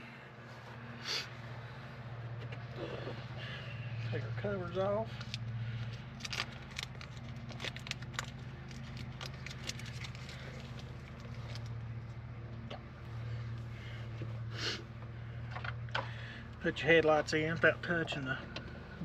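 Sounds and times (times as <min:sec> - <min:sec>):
steady low hum: 0:00.0 - 0:19.0
small plastic clicks and crackles: 0:06.2 - 0:11.7.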